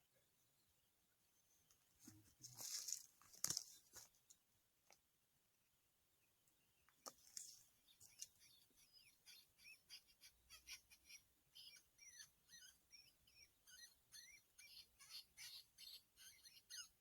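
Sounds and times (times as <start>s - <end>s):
high chirping calls: 7.9s - 17.0s.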